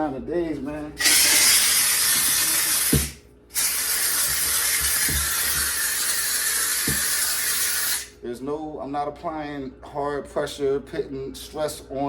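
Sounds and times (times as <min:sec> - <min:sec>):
steam cleaner hissing: 0:01.0 - 0:08.1.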